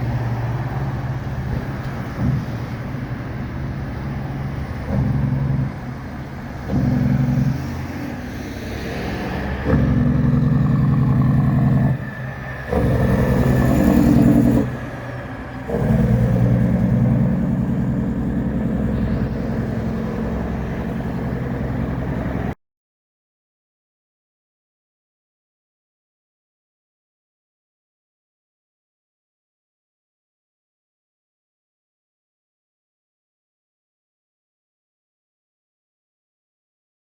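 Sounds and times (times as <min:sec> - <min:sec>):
truck diesel engine pulling hard: 0:00.0 - 0:22.6.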